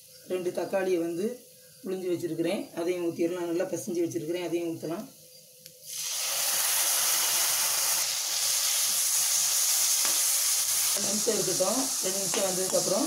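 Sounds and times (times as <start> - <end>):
tomatoes sizzling in hot oil: 5.8 - 13.0.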